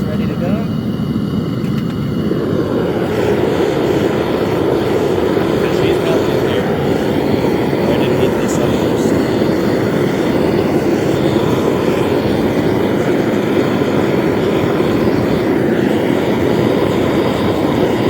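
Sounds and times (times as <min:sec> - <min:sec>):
propane burner roaring: 0:00.0 - 0:18.0.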